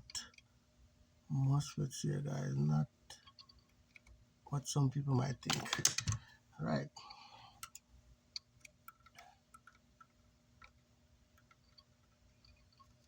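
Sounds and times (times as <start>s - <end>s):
faint steady hum: 0.0s - 13.0s
small tools clicking on parts: 5.4s - 6.2s.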